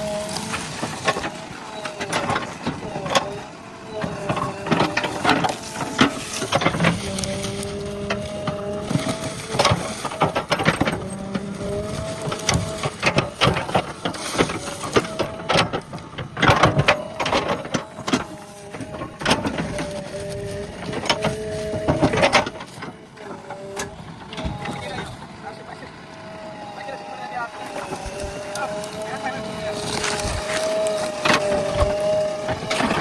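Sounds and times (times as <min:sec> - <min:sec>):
diesel engine under load: 0:00.0 - 0:33.0
hydraulic whine: 0:00.0 - 0:33.0
digging knocks and cracks: 0:04.0 - 0:23.0, 0:27.6 - 0:33.0.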